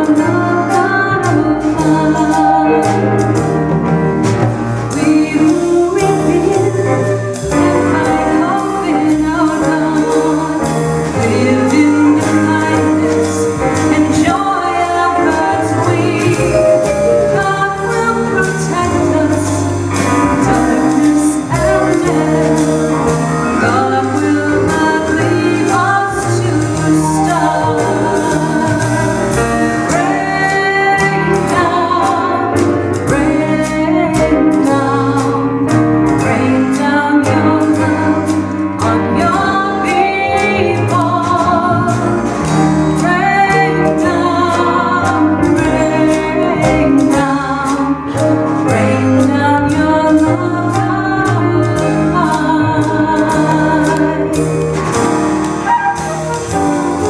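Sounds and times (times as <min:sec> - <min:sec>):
slow gospel-style band music: 0:00.0 - 0:57.0
person singing: 0:04.9 - 0:42.1.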